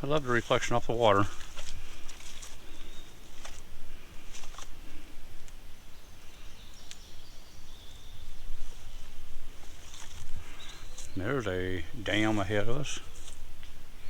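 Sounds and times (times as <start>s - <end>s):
faint high bird calls: 1.9s - 3.4s, 4.9s - 14.0s.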